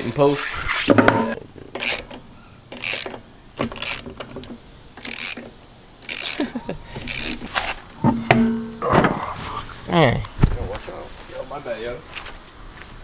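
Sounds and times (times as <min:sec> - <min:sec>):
metal mechanism clicking and rattling: 0:01.7 - 0:07.9.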